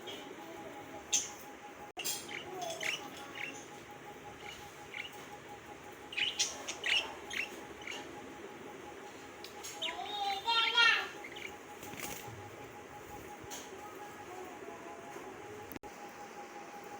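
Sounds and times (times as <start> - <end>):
budgerigars chirping: 2.0 - 12.2.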